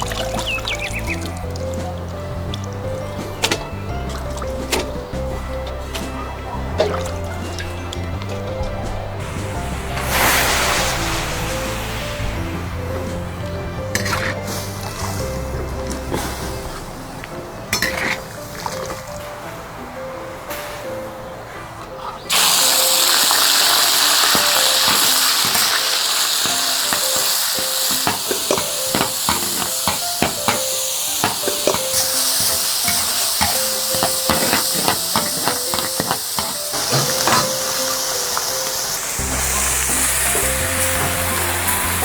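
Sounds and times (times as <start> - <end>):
food sizzling in hot oil: 9.2 - 16.6, 22.3 - 42.0
metal spatula scraping a wok: 31.2 - 37.8.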